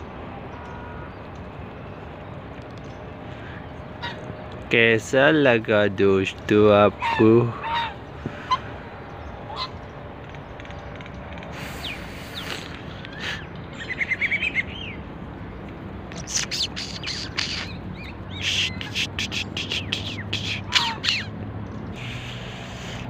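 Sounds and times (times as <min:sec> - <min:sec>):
small birds chirping: 0:00.0 - 0:23.0
bird trill: 0:06.9 - 0:23.0.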